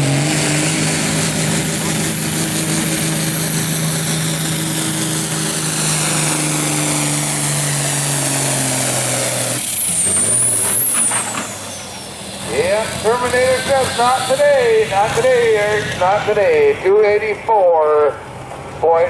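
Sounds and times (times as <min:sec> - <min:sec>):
tractor engine at full throttle: 0:00.0 - 0:19.0
high whistle winding down: 0:07.3 - 0:12.3.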